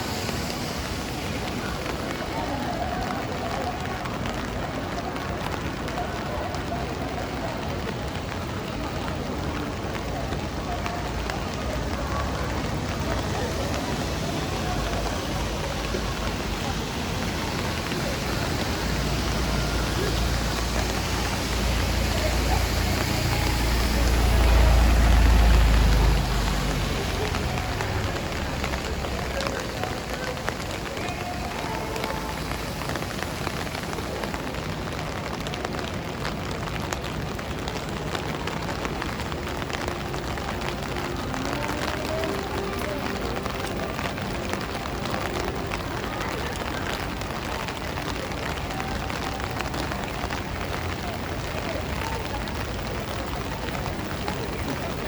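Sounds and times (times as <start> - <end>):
faint voices of passers-by: 0.0 - 55.0
passing traffic: 0.0 - 55.0
rain hiss on wet street: 0.0 - 55.0
vehicle passing: 12.2 - 33.9.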